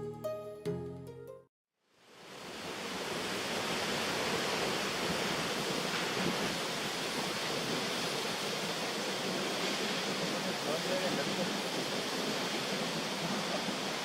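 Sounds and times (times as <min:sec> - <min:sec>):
waterfall roaring: 0:02.2 - 0:14.0.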